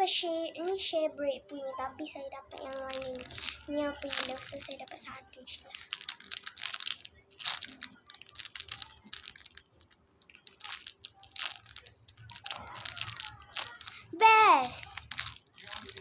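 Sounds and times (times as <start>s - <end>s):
foam toy being squeezed: 5.7s - 16.0s.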